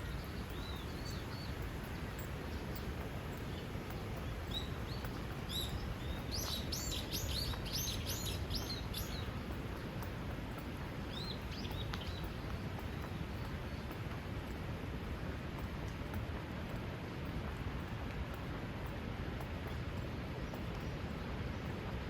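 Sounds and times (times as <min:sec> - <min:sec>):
small songbird chirping: 0:00.0 - 0:14.0.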